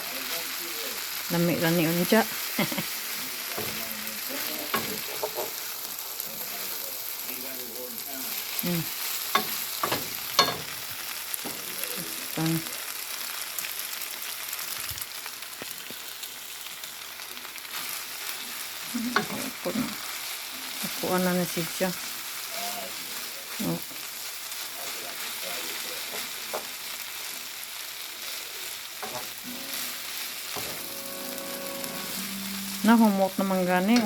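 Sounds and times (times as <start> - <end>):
noodles sizzling in a frying pan: 0.0 - 34.0
utensil scraping a pan: 3.4 - 5.7, 29.0 - 34.0.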